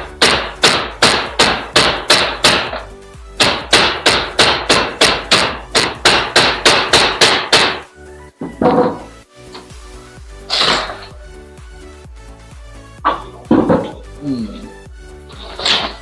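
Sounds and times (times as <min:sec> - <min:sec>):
rapid hammer blows on metal: 0:00.0 - 0:07.9
background music: 0:00.0 - 0:16.0.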